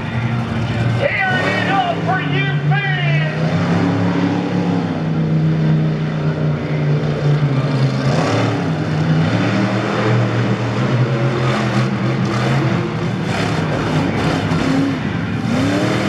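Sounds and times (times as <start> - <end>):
monster truck engine running: 0.0 - 16.0.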